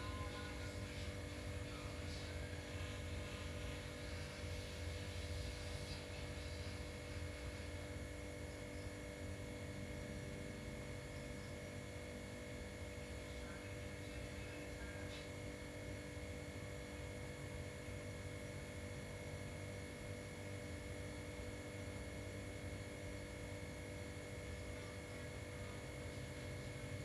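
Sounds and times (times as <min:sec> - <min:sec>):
steady tonal hum: 0:00.0 - 0:12.2.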